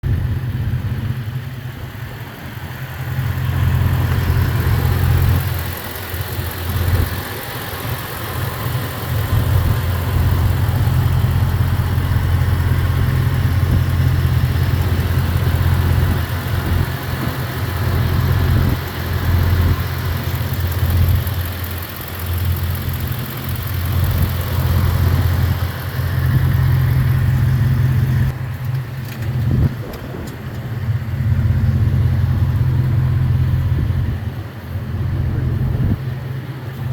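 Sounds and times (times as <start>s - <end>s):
pickup truck engine idling: 0.0s - 36.9s.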